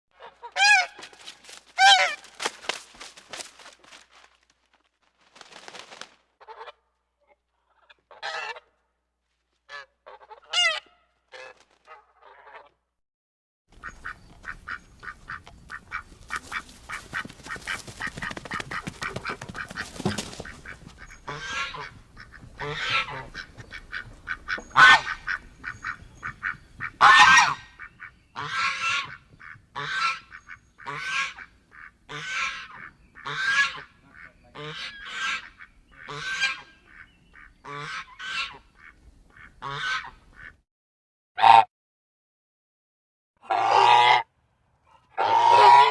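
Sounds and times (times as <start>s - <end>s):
geese honking: 0.2s - 2.8s, 7.8s - 8.8s, 9.7s - 12.7s, 13.8s - 40.6s, 43.4s - 44.3s, 45.2s - 45.9s.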